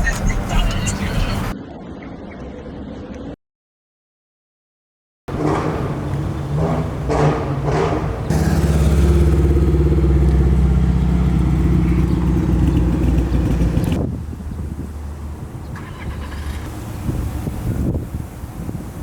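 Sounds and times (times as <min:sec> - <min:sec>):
car engine revving: 0:05.3 - 0:17.8.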